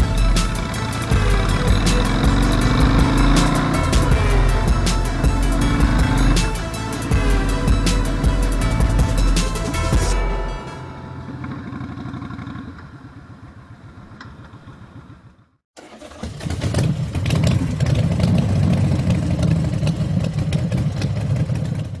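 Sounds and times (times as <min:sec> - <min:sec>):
motorcycle engine running: 0:00.0 - 0:15.6.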